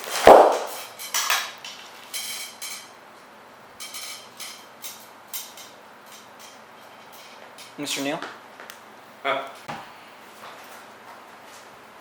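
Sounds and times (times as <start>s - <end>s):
metallic clinks and rattles: 3.8s - 7.8s.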